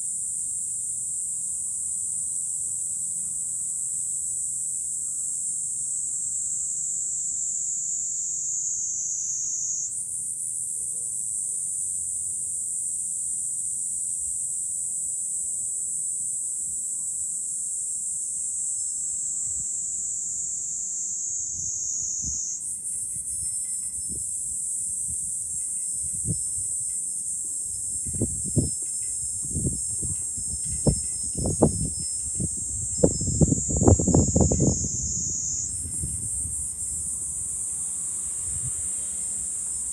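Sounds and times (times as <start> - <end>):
cicadas buzzing: 0.0 - 39.9
wind buffeting microphone: 23.0 - 39.6.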